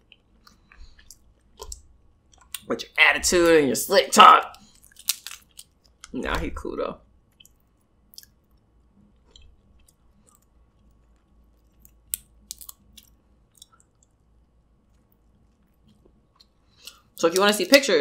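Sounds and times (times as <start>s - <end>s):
quiet chewing: 0.0s - 2.7s, 7.3s - 17.2s.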